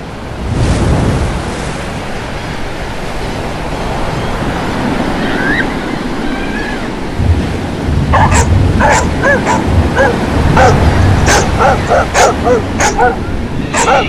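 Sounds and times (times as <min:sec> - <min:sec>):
surf breaking on beach: 0:00.0 - 0:14.0
faint seagull calls: 0:12.8 - 0:14.0.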